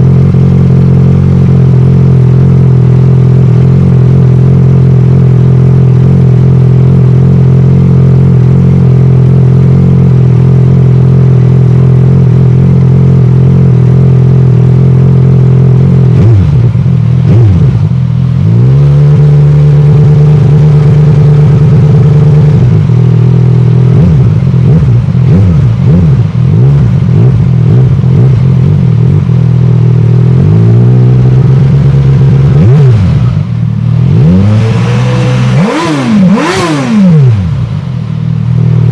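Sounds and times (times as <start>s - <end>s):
scooter engine revving: 16.0s - 22.9s, 23.9s - 29.5s, 30.2s - 38.9s.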